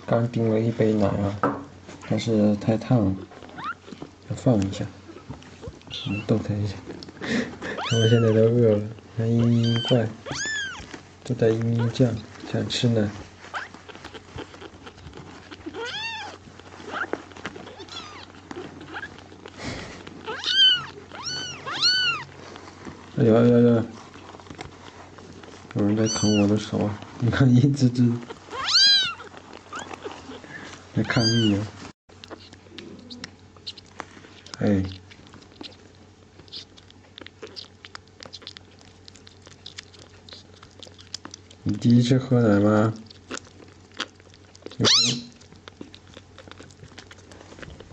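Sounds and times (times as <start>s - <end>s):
kittens mewing: 3.2s - 4.1s, 5.0s - 6.5s, 7.2s - 10.9s, 13.4s - 22.5s, 25.8s - 26.7s, 28.1s - 31.6s, 43.0s - 47.9s.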